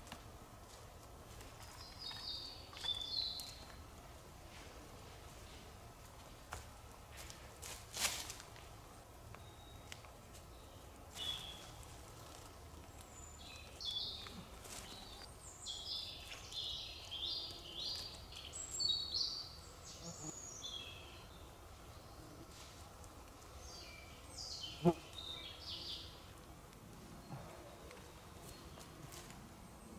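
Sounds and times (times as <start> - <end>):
songbird chirping: 1.5 - 3.9, 9.2 - 29.9.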